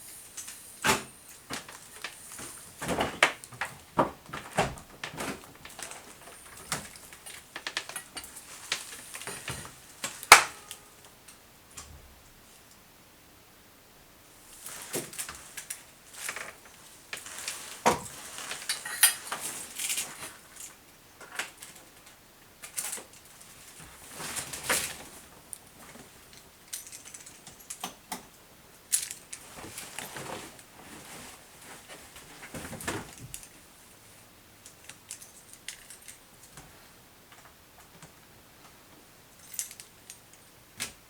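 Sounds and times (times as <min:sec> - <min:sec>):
objects clicking and rattling: 0:01.3 - 0:11.4, 0:15.0 - 0:21.8, 0:24.1 - 0:28.3, 0:34.6 - 0:36.7, 0:39.4 - 0:41.0.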